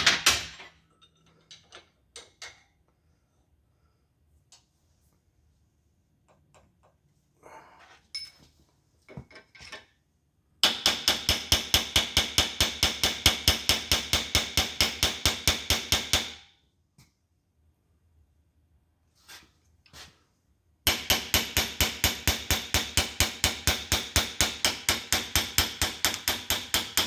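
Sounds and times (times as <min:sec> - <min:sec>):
light metal clinks and taps: 0:08.1 - 0:09.9.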